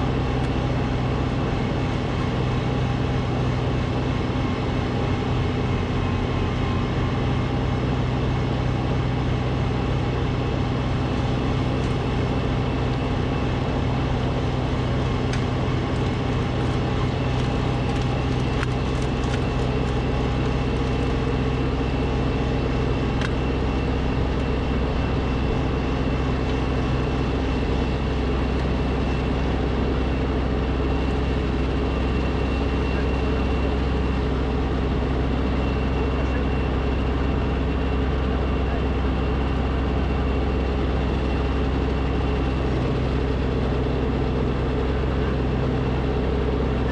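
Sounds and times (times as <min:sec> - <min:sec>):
snowblower engine running: 0:00.0 - 0:46.9.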